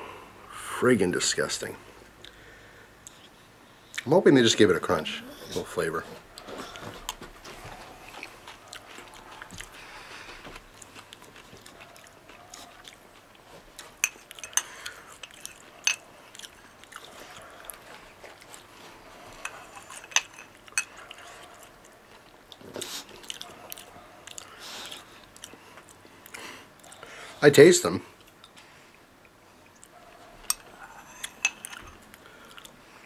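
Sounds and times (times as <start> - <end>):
person chewing: 6.3 - 27.2, 28.2 - 29.0, 29.6 - 32.8.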